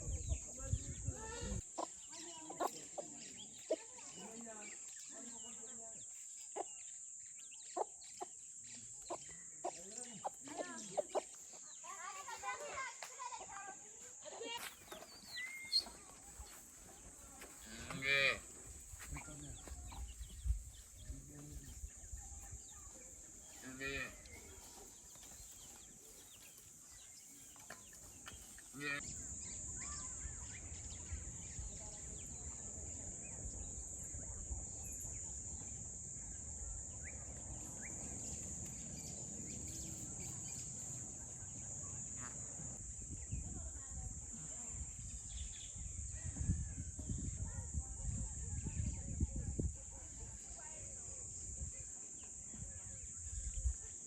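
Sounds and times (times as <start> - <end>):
bird chirps: 14.6 - 17.2
short bird chirps: 14.9 - 16.1
high-pitched insect trill: 28.5 - 49.8.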